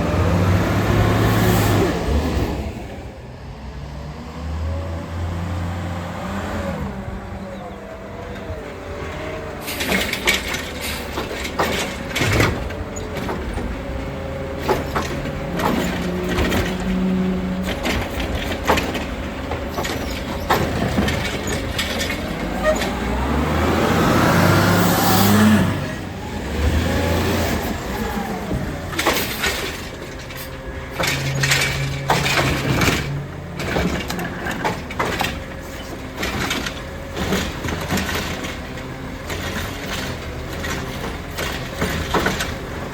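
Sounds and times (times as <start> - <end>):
garbage truck engine: 0.0 - 42.9
metal and bins clattering: 8.2 - 23.4, 27.5 - 42.9.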